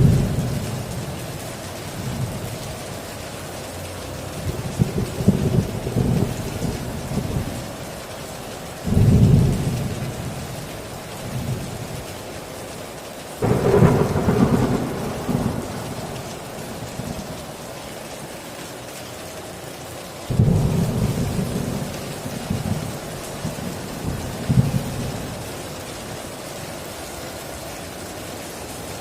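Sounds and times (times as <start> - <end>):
thunder rumbling: 0.0 - 2.6, 4.4 - 7.8, 8.8 - 12.0, 13.4 - 18.4, 20.3 - 25.9
heavy rain: 0.0 - 29.0.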